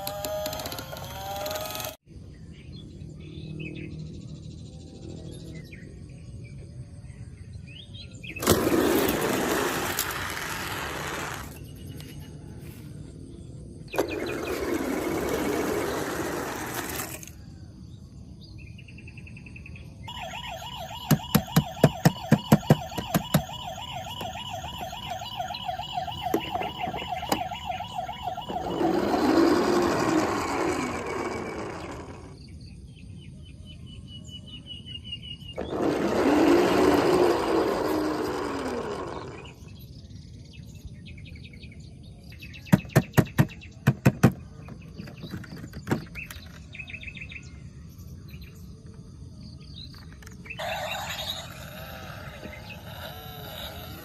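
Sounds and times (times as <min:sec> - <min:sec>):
toy siren warbling: 0:00.0 - 0:02.0, 0:20.1 - 0:32.4, 0:35.6 - 0:39.6, 0:50.6 - 0:54.0.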